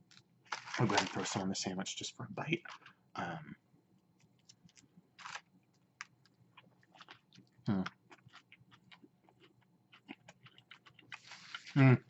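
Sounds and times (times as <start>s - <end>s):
chewing with wet crunches: 6.0s - 11.3s.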